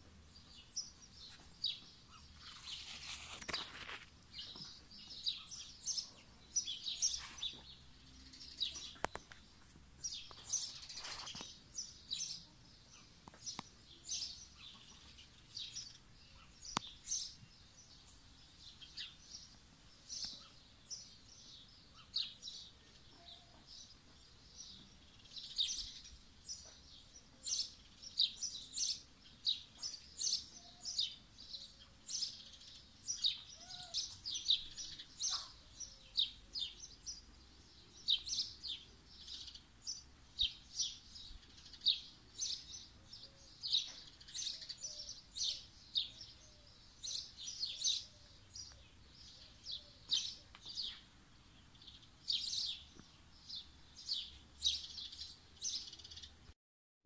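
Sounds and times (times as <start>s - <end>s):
small birds chirping: 0.0s - 56.6s.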